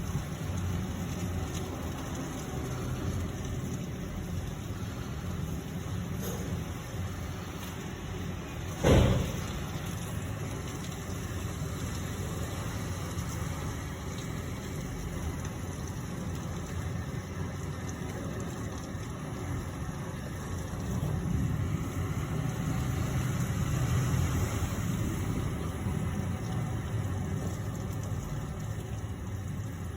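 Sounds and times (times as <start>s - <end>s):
heavy rain: 0.0s - 29.9s
low thump: 8.8s - 9.6s.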